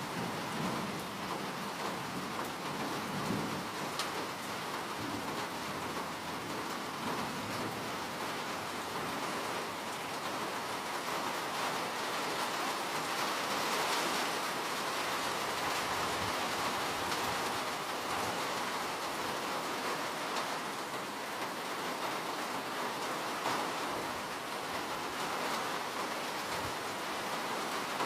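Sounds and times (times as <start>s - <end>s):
steady rainfall hiss: 0.0s - 28.0s
raindrop ticks: 3.2s - 6.1s.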